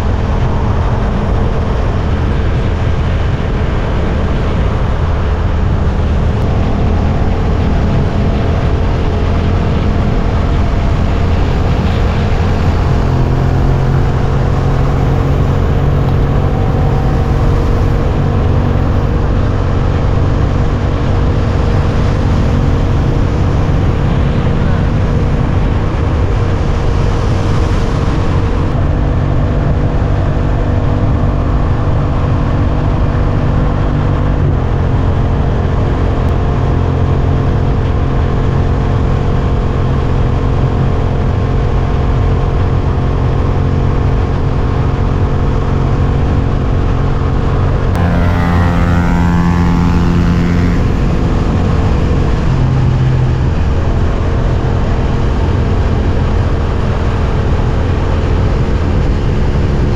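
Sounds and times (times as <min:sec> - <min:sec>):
motorcycle engine cruising: 0:00.0 - 0:59.9
road and wind noise: 0:00.0 - 0:59.9
high sound falling and rising: 0:04.1 - 0:28.9, 0:48.0 - 0:54.6.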